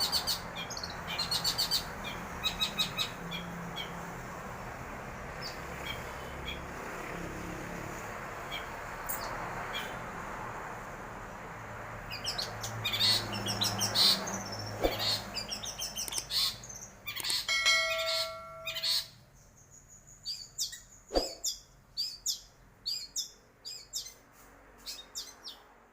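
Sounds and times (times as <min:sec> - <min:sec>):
shrike singing: 0:13.2 - 0:19.2.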